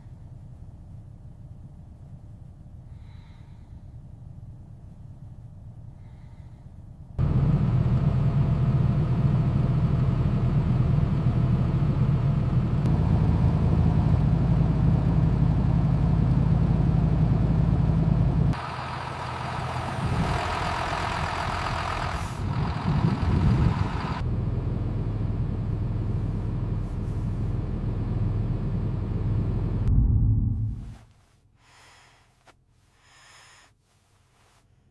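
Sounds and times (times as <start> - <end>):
truck diesel engine humming: 7.2 - 30.9
hiss: 31.6 - 34.6.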